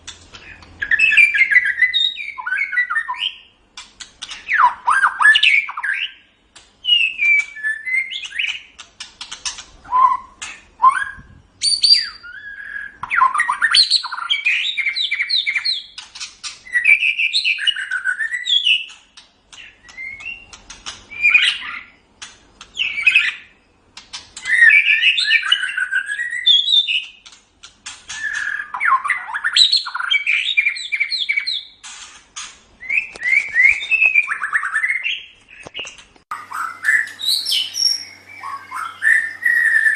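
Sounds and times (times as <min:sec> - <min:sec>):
bird singing whistled phrases: 0:00.8 - 0:03.5, 0:04.5 - 0:08.6, 0:09.8 - 0:15.9, 0:16.6 - 0:19.0, 0:19.6 - 0:22.0, 0:24.4 - 0:27.2, 0:28.1 - 0:31.8, 0:32.8 - 0:35.7, 0:36.3 - 0:39.9.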